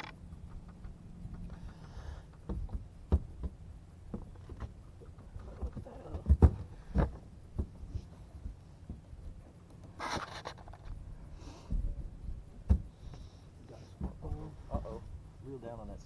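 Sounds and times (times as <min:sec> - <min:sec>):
knocks and thumps: 0:00.0 - 0:09.1, 0:12.6 - 0:13.0, 0:14.0 - 0:14.4
low steady rumble: 0:00.0 - 0:16.0.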